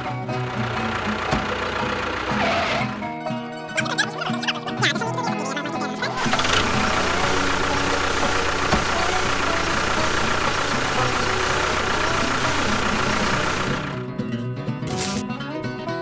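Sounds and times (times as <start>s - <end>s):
engine running steadily: 0.0s - 3.2s, 5.0s - 14.2s.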